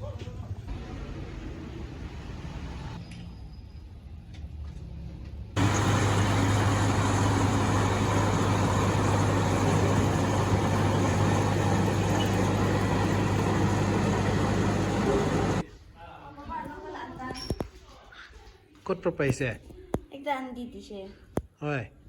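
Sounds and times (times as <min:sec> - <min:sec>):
vehicle engine running: 0:05.6 - 0:15.6.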